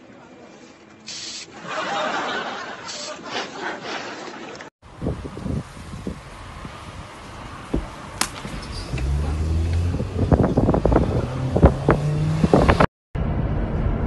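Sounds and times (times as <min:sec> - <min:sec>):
car engine humming: 0:06.2 - 0:13.9.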